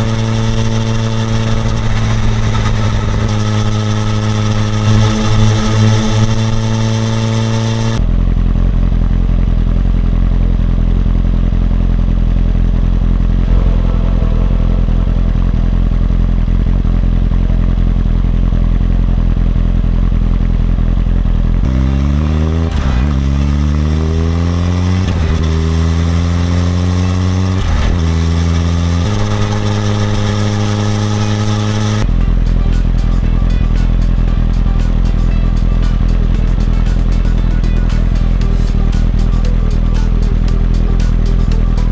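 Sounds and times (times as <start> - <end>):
dull low rumble: 0.0 - 41.9
motorcycle engine accelerating: 0.0 - 41.9.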